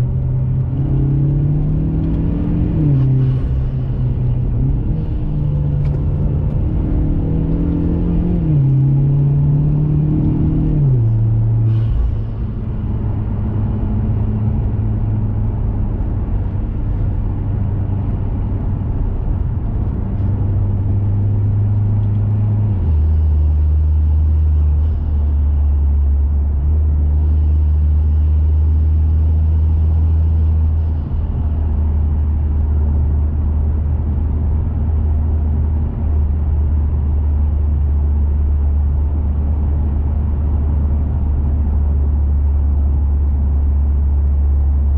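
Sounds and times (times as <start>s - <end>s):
car engine droning: 0.0s - 44.9s.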